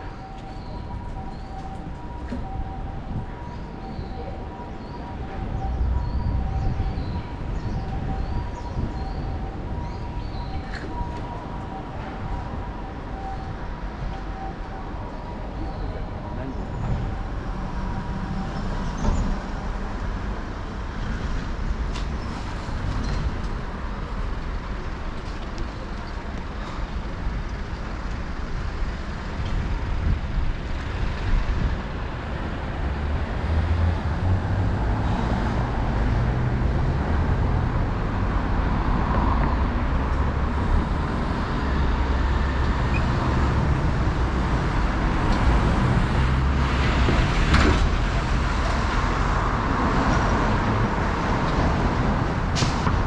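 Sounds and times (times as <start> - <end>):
motor vehicles passing: 31.2 - 53.0.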